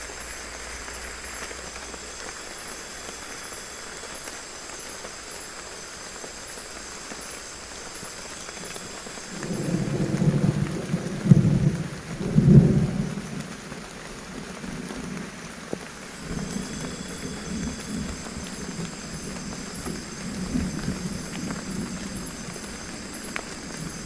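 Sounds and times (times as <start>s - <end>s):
heavy rain: 0.0s - 24.0s
thunder rumbling: 8.7s - 15.3s, 16.2s - 24.0s.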